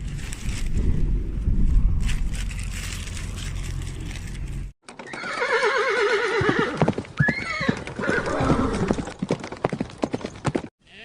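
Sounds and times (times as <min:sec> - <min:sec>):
hooves clip-clopping: 0:04.9 - 0:10.7
horse whinnying: 0:05.0 - 0:09.0.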